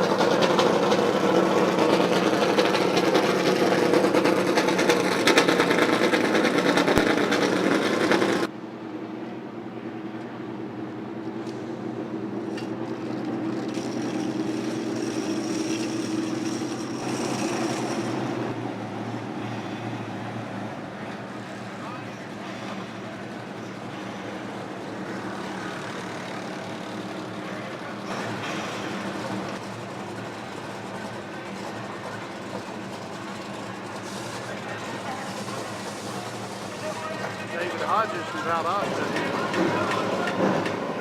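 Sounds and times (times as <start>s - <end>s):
quieter engine running: 0.0s - 41.0s
race car engines droning: 0.0s - 41.0s.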